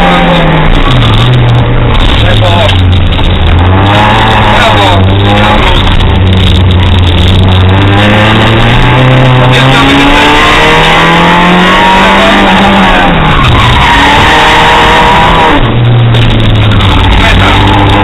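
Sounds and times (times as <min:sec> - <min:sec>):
car engine revving from inside cabin: 0:03.2 - 0:13.1.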